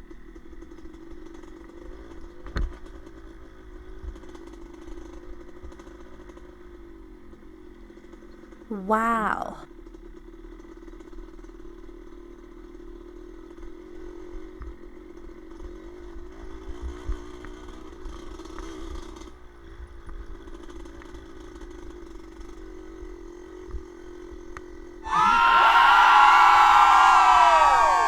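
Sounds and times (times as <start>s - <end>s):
engine humming: 25.0s - 28.0s.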